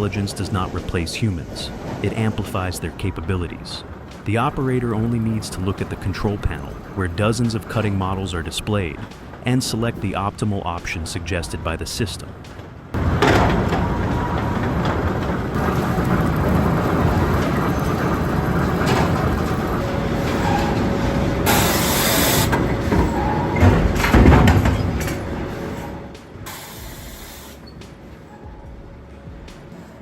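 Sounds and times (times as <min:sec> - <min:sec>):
sawmill machinery rumbling and clattering: 0:00.0 - 0:30.0
heavy knocks: 0:22.4 - 0:25.5
burst of hiss: 0:26.5 - 0:27.6.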